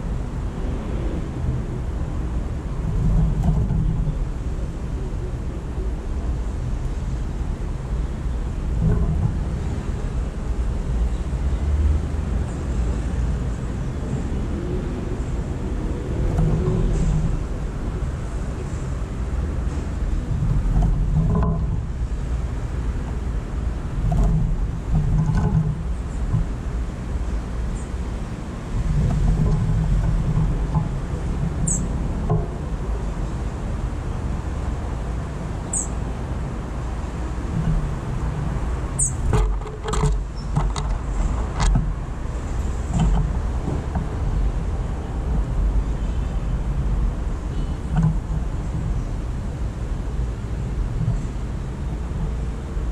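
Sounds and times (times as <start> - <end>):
city traffic rumble: 0.0 - 52.9
faint high bird chirps: 31.7 - 31.9, 35.7 - 36.0.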